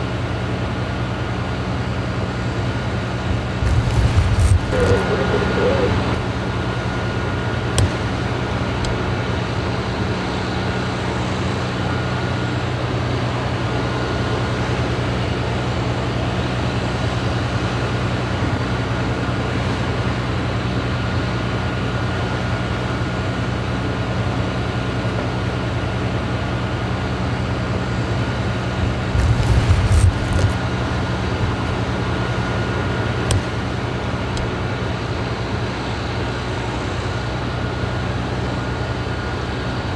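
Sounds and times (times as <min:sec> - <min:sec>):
faint continuous whine: 0:00.0 - 0:39.9
fire engine idling: 0:00.0 - 0:39.9
loud rumble: 0:03.1 - 0:09.2, 0:28.7 - 0:34.7
sharp clicks: 0:07.8 - 0:08.0, 0:33.3 - 0:33.6.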